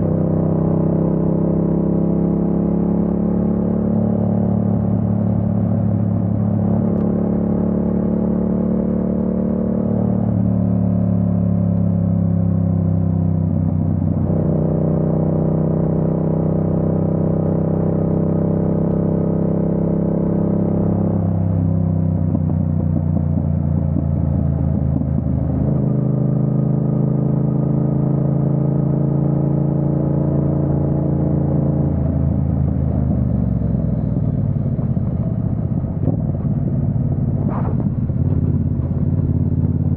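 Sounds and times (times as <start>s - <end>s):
motorcycle engine running: 20.9s - 39.9s.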